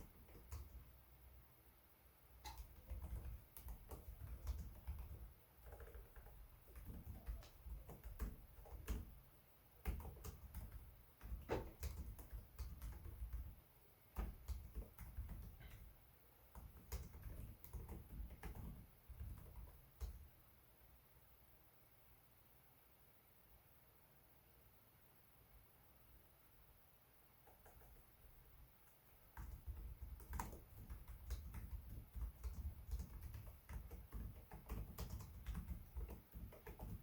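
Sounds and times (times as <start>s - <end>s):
laptop keyboard typing: 0.0s - 1.0s, 2.4s - 9.2s, 9.8s - 20.3s, 27.4s - 28.2s, 28.8s - 37.0s.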